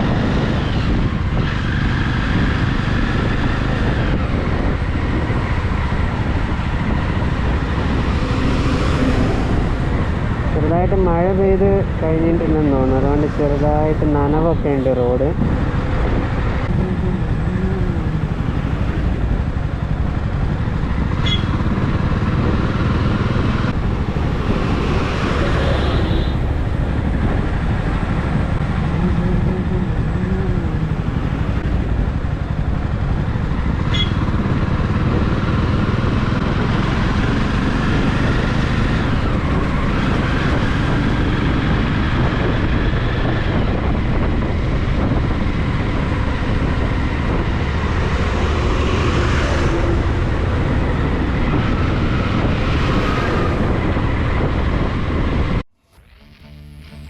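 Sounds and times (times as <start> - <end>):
road noise: 0.0 - 57.0
motorcycle engine running: 14.5 - 57.0.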